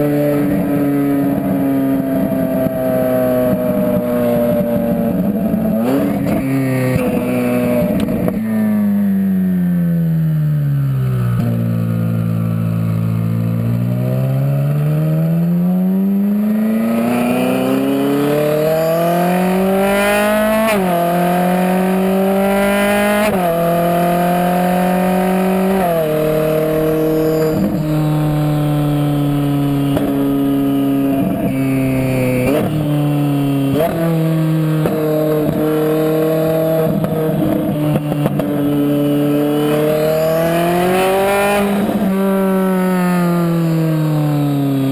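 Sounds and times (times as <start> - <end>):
sports car engine accelerating: 0.0 - 44.9.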